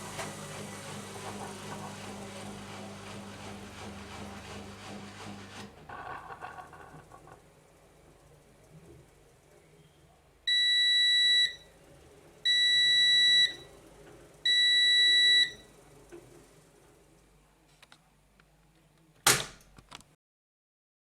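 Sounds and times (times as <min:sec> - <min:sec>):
washing machine buzzer beeps: 0:10.5 - 0:11.7, 0:12.4 - 0:13.7, 0:14.4 - 0:15.8.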